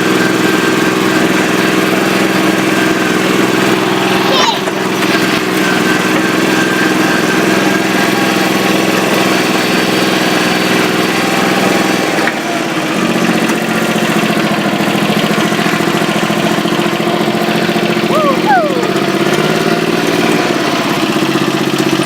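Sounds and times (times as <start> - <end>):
small tractor engine running: 0.0 - 22.0.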